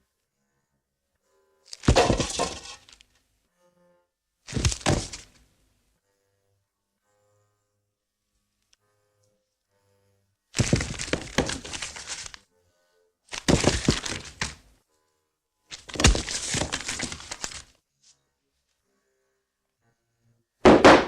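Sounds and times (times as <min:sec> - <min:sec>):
clattering and cracking knocks: 0:01.8 - 0:03.0, 0:04.5 - 0:05.3, 0:10.6 - 0:12.4, 0:13.3 - 0:14.6, 0:15.8 - 0:17.6.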